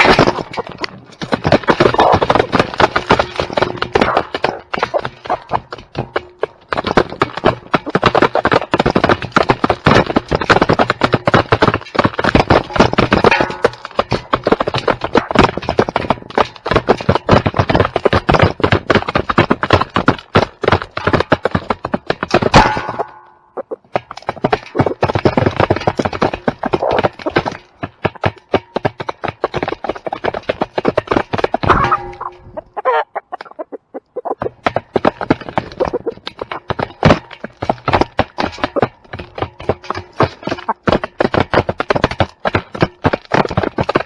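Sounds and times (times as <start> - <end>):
chickens clucking: 0.0 - 6.6, 22.5 - 25.0, 26.6 - 27.5, 29.8 - 37.3, 40.4 - 41.0
rapid clicks and crunches: 0.0 - 44.0
short pitched calls: 31.7 - 34.4.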